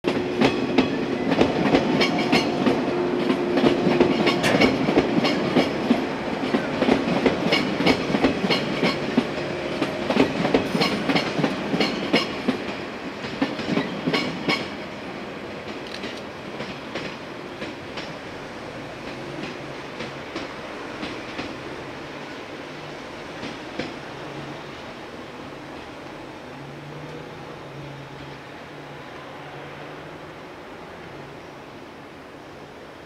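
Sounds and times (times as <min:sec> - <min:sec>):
train wheels clacking over joints: 0:00.1 - 0:14.8.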